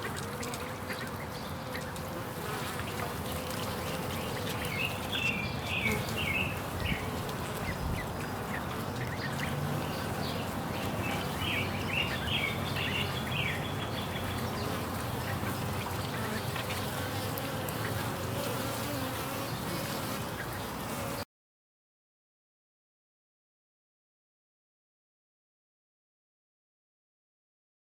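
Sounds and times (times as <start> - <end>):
honey bees buzzing: 0.0 - 21.3.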